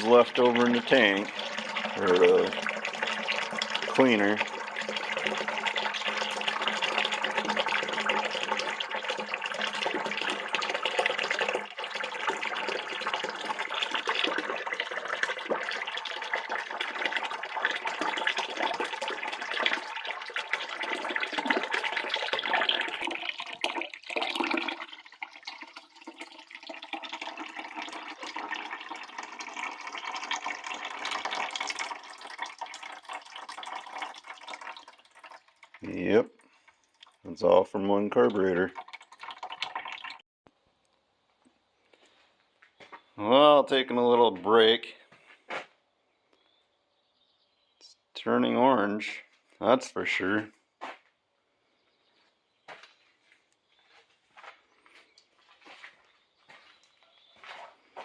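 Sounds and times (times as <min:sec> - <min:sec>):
liquid pouring in a stream: 0:00.0 - 0:40.2.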